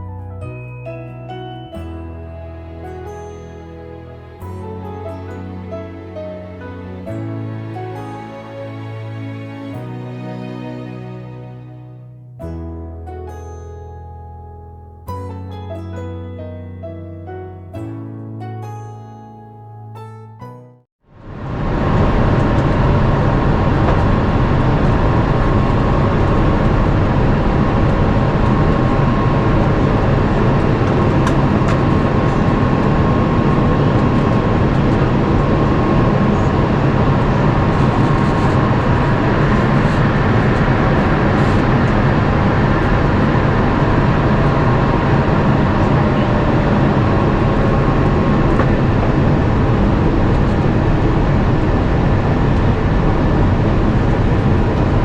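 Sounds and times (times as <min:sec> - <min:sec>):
airplane cabin engine and airflow: 0:21.1 - 0:55.0.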